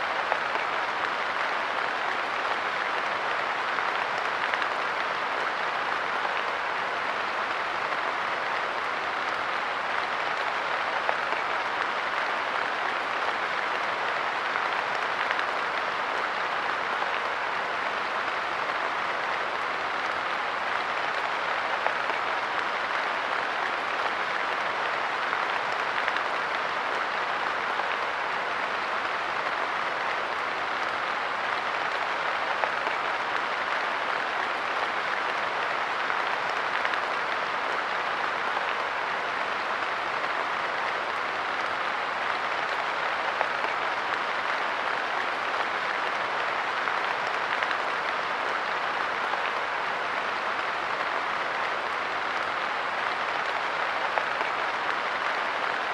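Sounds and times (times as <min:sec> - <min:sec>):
light rain pattering: 0:00.0 - 0:55.9.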